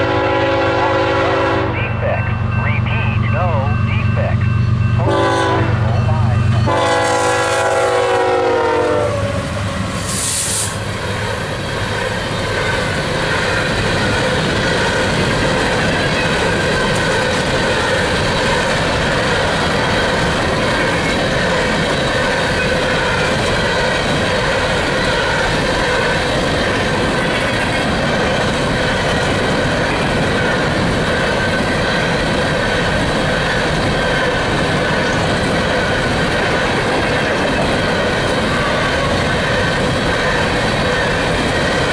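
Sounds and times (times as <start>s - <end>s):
locomotive horn: 0.0s - 2.0s, 5.0s - 9.6s
train cars rumbling past: 0.0s - 41.9s
wheels clattering on rails: 10.9s - 41.9s.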